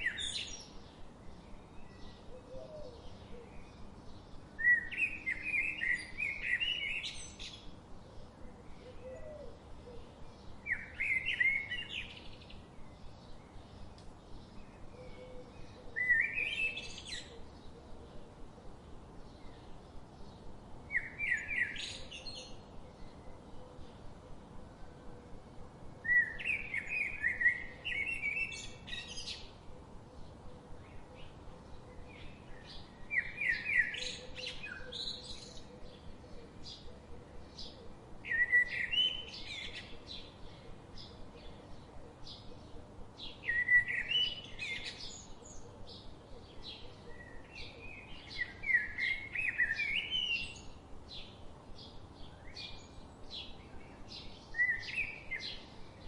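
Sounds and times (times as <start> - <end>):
faint bird chirps: 0.0 - 18.2.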